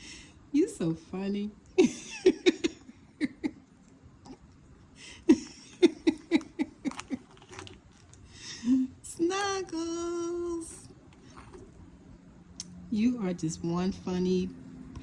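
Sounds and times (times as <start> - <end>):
woman laughing: 1.8 - 3.6, 5.0 - 7.4.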